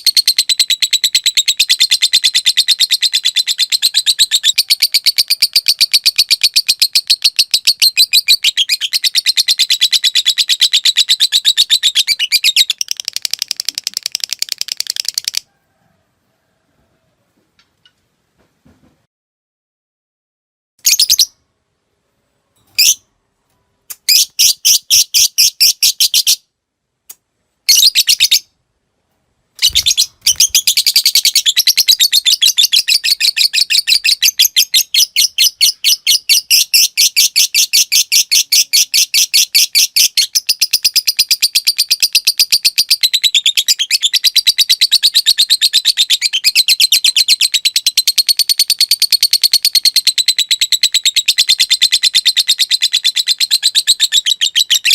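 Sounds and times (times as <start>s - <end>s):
lovebird chirping: 0.0s - 15.5s, 20.8s - 21.5s, 22.4s - 23.1s, 23.7s - 26.5s, 27.6s - 28.6s, 29.6s - 54.9s.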